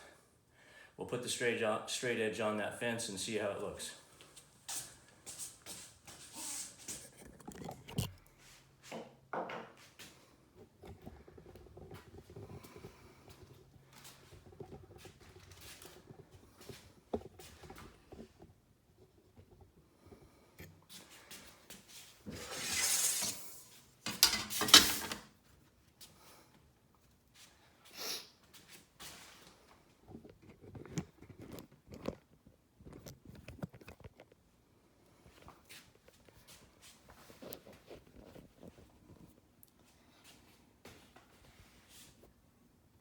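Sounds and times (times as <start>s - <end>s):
straight edge scraping slide: 22.3s - 25.3s.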